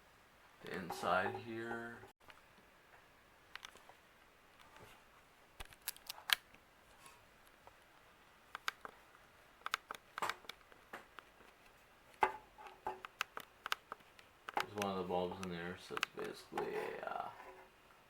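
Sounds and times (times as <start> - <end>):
handling clicks and taps: 12.1 - 16.8.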